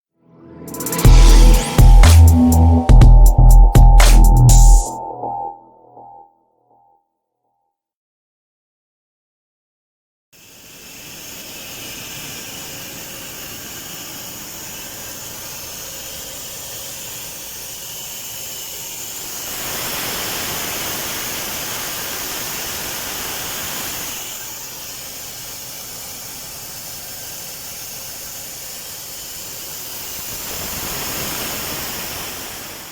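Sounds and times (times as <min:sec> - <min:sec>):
pneumatic vacuum cleaner hissing: 0:10.4 - 0:32.9.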